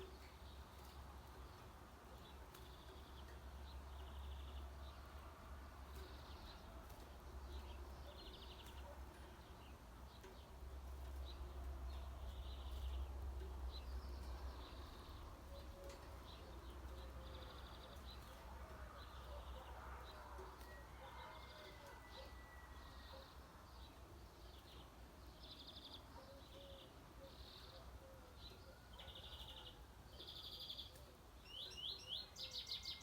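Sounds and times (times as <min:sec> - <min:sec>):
small birds buzzy trills and chirps: 0:00.0 - 0:33.0.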